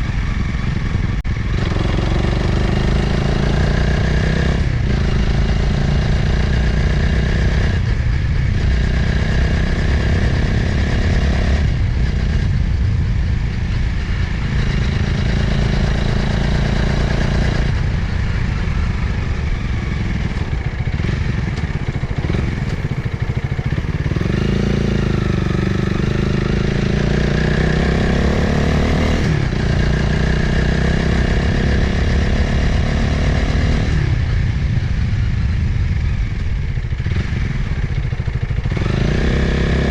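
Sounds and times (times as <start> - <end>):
motorcycle engine running: 0.0 - 39.9
wind noise: 0.0 - 39.9.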